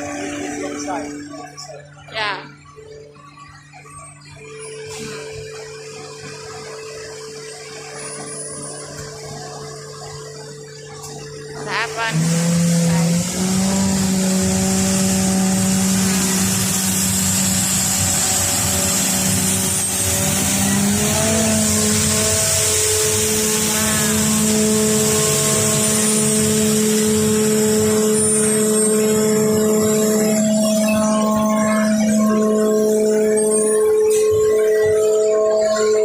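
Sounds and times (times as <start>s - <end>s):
music of long held chords: 0.0s - 36.0s
truck engine noise: 0.0s - 36.0s
street sweeper brushes hissing: 11.7s - 31.7s.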